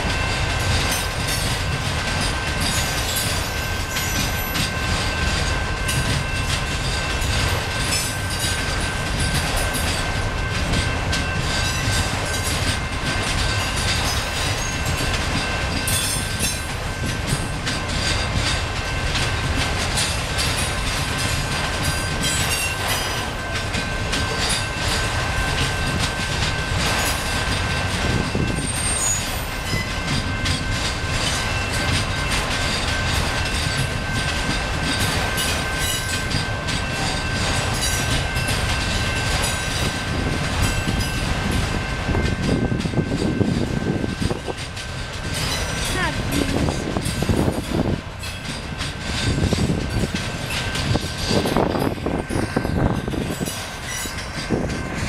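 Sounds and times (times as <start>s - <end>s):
train wheels rumbling on rail: 0.0s - 55.0s
high thin wheel squeal: 28.6s - 29.9s.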